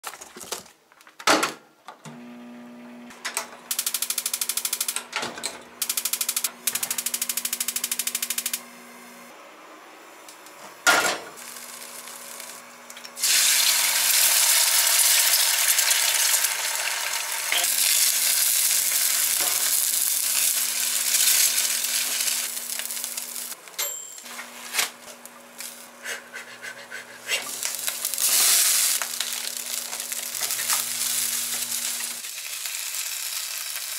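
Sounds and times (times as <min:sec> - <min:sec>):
rice sizzling in a frying pan: 0:11.4 - 0:23.6, 0:27.5 - 0:33.9.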